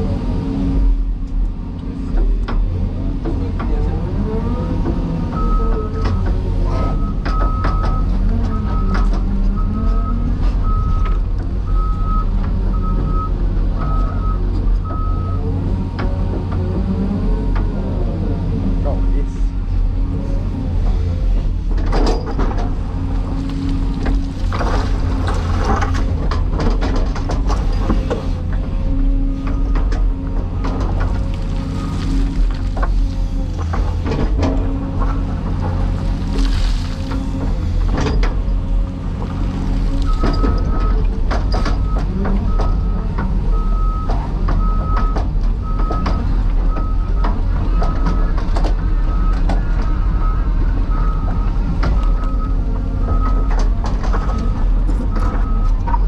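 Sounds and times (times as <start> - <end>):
excavator diesel engine droning: 0.0 - 56.0
short knocks and clatters: 21.7 - 28.7
reversing alarm beeping: 54.2 - 55.8.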